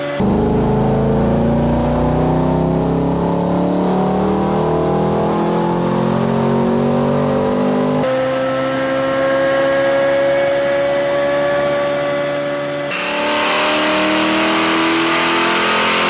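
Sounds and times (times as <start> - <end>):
high rising engine note: 0.0 - 8.0
car engine accelerating: 0.0 - 16.0.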